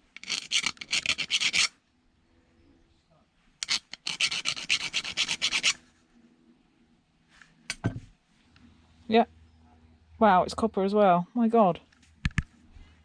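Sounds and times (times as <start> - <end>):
hand tool scraping metal: 0.0 - 1.7, 3.6 - 5.8.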